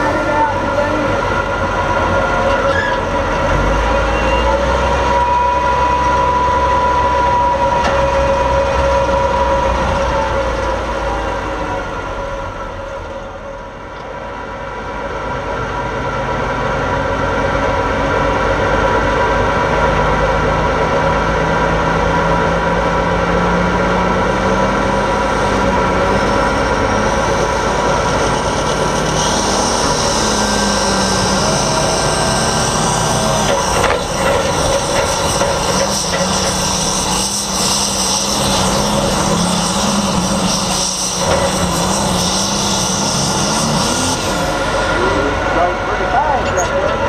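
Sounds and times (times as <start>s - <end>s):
tractor engine running hard: 0.0s - 47.0s.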